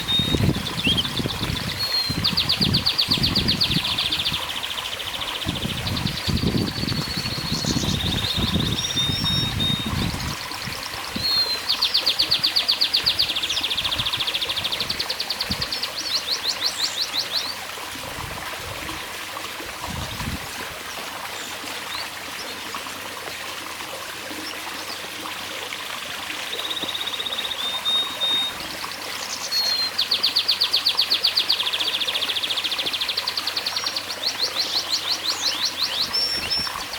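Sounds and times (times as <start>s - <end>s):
canary singing trills: 0.0s - 17.6s, 26.6s - 36.9s.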